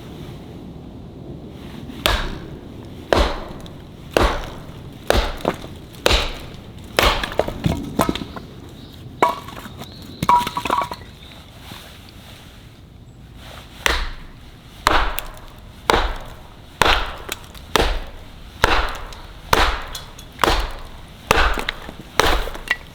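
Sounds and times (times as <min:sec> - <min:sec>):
wood splintering crackle: 0:01.6 - 0:11.3, 0:13.8 - 0:22.9
axe blows chopping wood: 0:02.0 - 0:08.5, 0:13.9 - 0:22.9.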